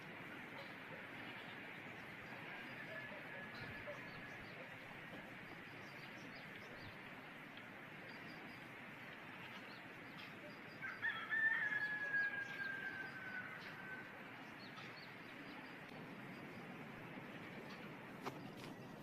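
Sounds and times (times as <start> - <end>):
steady background hiss: 0.0 - 19.0
rooster crowing: 10.8 - 14.2.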